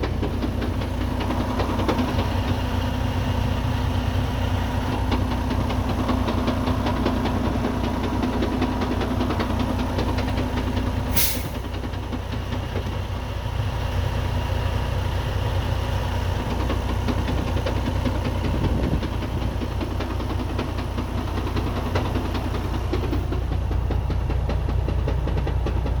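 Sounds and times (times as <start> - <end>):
diesel engine idling: 0.0 - 26.0
fast transmission rattle: 0.0 - 26.0
short sharp air hiss: 11.1 - 11.7.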